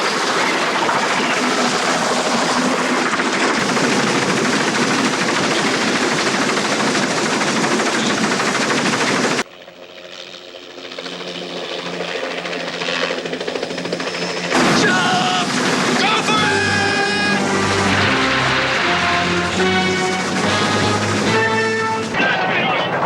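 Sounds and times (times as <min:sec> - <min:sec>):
heavy vehicle rattling and rumbling: 0:14.6 - 0:22.2.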